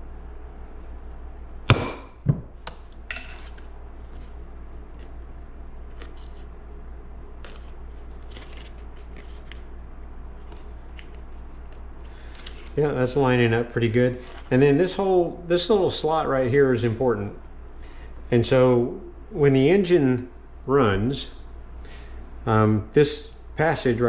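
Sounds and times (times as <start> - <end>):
hammer striking a hollow punch: 1.7 - 3.4
paper rustling: 5.8 - 6.5, 7.4 - 12.8.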